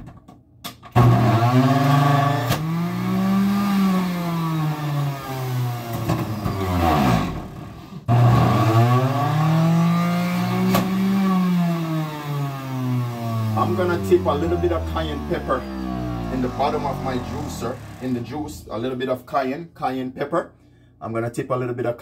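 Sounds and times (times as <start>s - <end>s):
motor running loudly: 1.1s - 18.8s.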